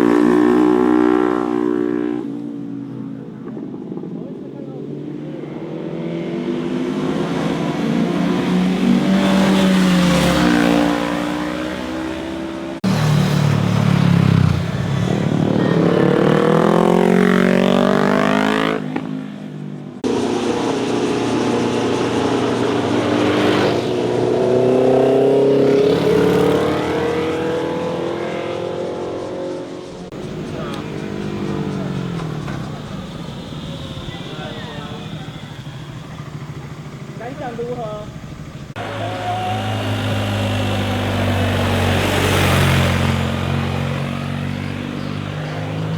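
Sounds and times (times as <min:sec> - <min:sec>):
motorcycles revving past: 0:00.0 - 0:45.9.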